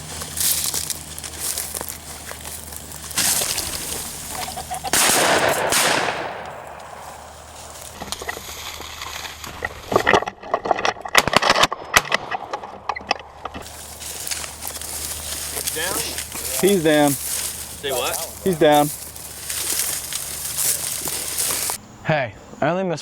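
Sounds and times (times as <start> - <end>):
crackling and rustling: 0.0 - 21.8
shotgun shots: 4.9 - 7.6.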